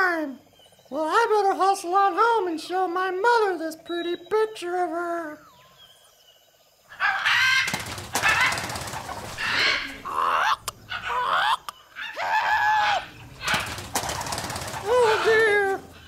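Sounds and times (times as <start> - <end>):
bird squawks: 6.9 - 16.0
rough flapping noise: 7.5 - 10.1, 13.1 - 16.0.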